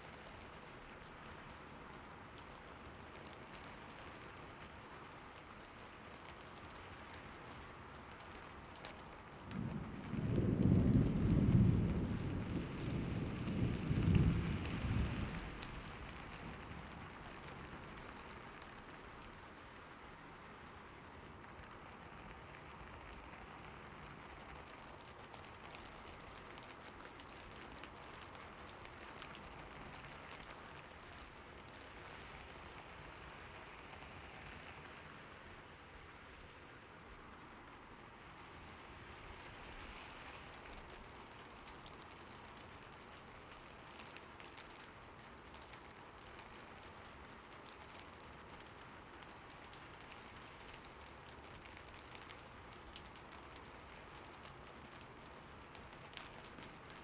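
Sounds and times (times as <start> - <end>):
steady rain: 0.0 - 57.0
thunder rolling: 9.5 - 16.1.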